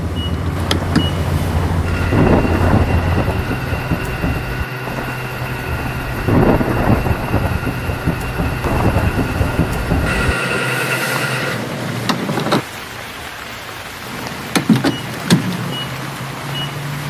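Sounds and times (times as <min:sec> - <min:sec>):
small electric motor whining: 0:01.2 - 0:11.6.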